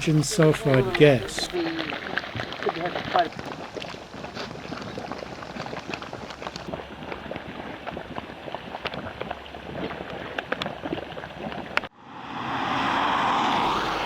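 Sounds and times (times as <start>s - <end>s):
hot pool bubbling: 0.0s - 11.9s
steady rushing noise: 11.9s - 14.0s.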